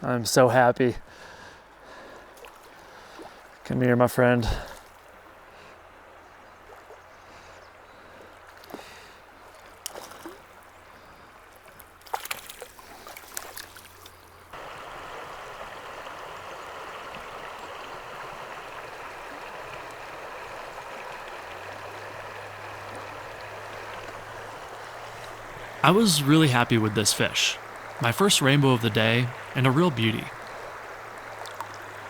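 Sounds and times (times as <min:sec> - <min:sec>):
stream water flowing: 0:04.5 - 0:32.0.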